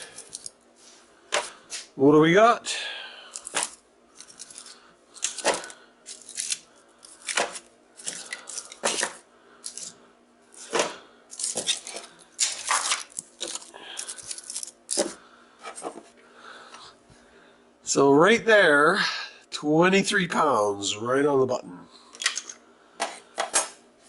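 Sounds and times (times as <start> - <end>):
metallic clinks and rustles: 0.0 - 0.6, 3.4 - 7.3, 13.0 - 15.1.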